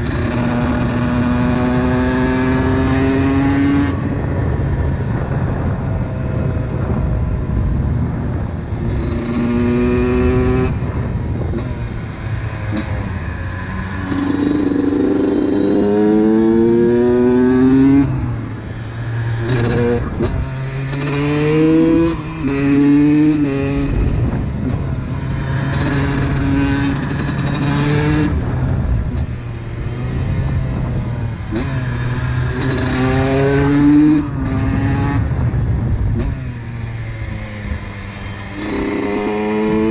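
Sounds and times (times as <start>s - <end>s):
two-stroke engine revving: 12.7s - 18.6s, 38.5s - 39.9s.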